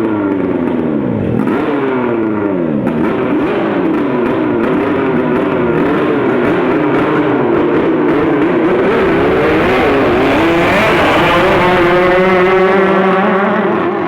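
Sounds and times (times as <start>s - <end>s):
boat engine revving: 7.7s - 14.0s.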